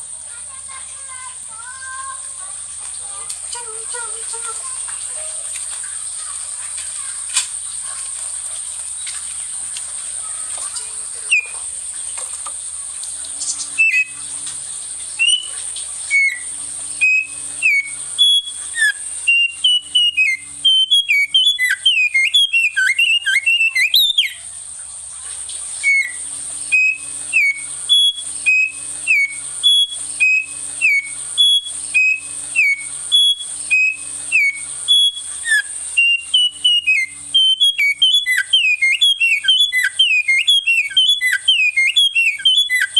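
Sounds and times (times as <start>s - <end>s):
steady high hiss: 0.0s - 42.9s
songbird whistling: 11.2s - 11.6s, 13.4s - 14.4s, 15.1s - 24.5s, 25.8s - 42.9s.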